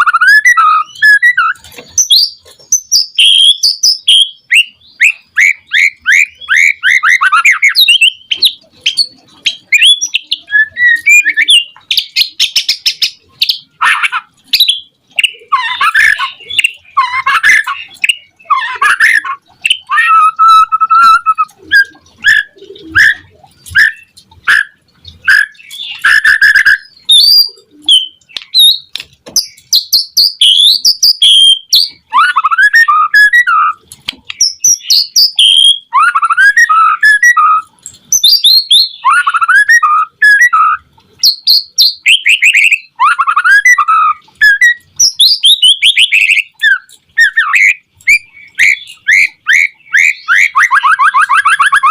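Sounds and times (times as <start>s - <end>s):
songbird singing whistled phrases: 0.0s - 51.9s.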